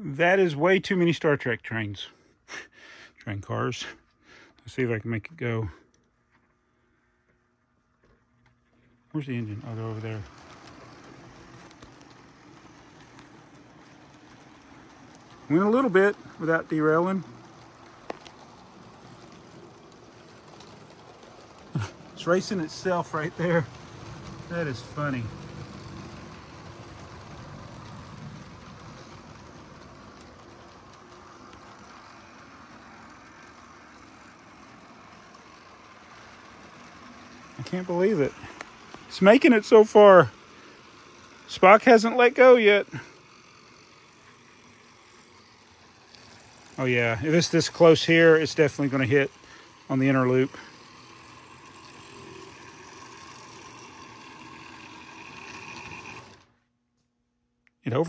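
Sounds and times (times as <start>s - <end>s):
model train motor hum: 0.0s - 56.6s
train wheels rumbling on rails: 9.2s - 56.4s
faint clicks: 23.6s - 32.2s.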